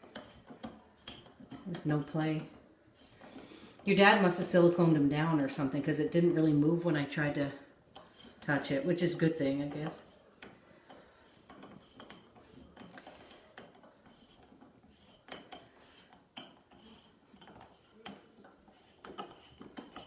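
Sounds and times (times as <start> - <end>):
faint metallic clicks and clinks: 0.0 - 1.9, 9.6 - 20.0.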